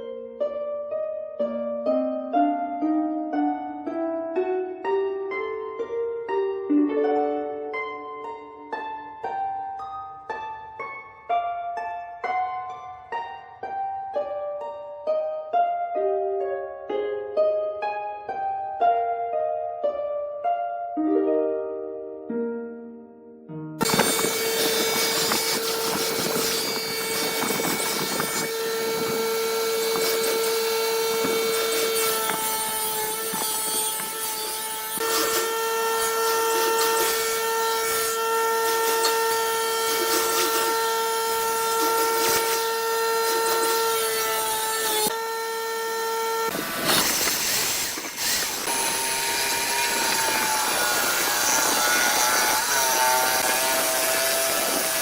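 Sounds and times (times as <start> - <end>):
burst of rough noise: 23.8 - 32.4, 46.5 - 55.0
power tool motor whining: 23.8 - 55.0
power tool whine wavering pitch: 23.8 - 55.0.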